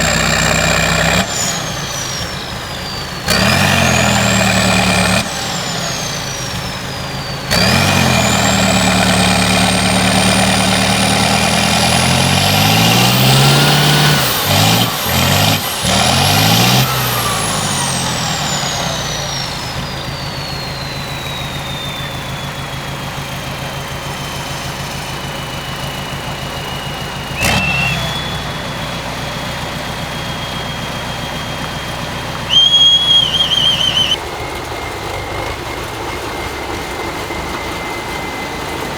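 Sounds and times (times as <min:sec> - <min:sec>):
truck diesel engine revving: 0:00.0 - 0:34.2
high whine: 0:00.0 - 0:38.9.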